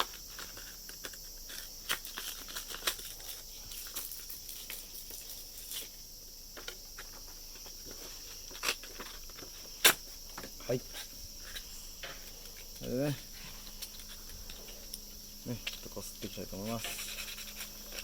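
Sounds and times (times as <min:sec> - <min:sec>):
sandpaper rustling and clicking: 0:00.0 - 0:06.0, 0:15.6 - 0:18.0
high-pitched background hum: 0:00.0 - 0:18.0.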